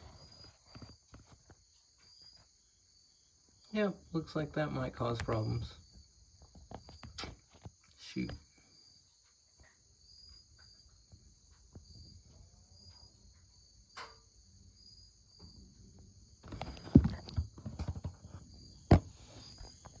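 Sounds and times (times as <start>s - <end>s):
insects chirping: 0.0s - 20.0s
rustling: 16.4s - 20.0s.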